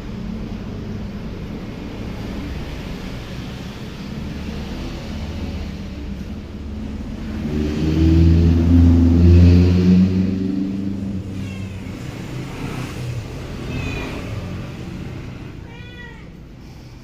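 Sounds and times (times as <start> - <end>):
passing vehicle engine: 0.0 - 17.0
cat meowing: 11.2 - 16.5.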